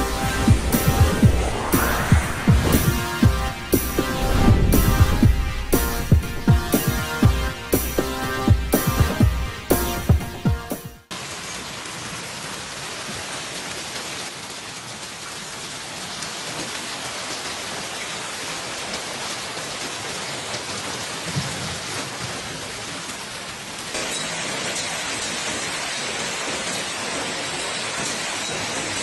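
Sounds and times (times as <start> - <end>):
music track: 0.0 - 11.1
hail and heavy rain pelting: 11.2 - 29.0.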